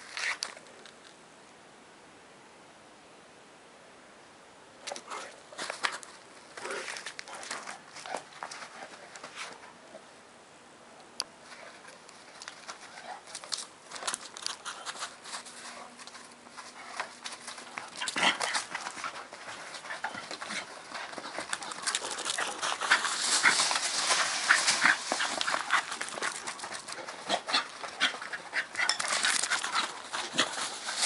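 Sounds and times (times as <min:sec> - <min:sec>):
scuffling and rustling clicks: 0:04.8 - 0:09.7, 0:11.2 - 0:31.0.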